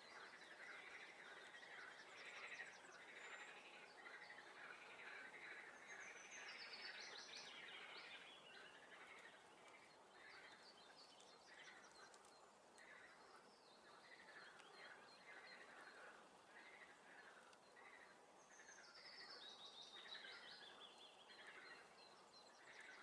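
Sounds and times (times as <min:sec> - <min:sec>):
songbirds singing: 0:00.0 - 0:23.0.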